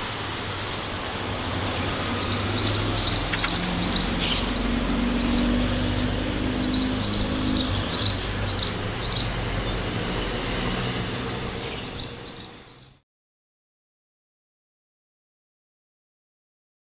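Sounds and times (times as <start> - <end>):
road traffic noise: 0.0 - 13.0
sparrow chirping: 1.6 - 10.7, 11.6 - 13.0.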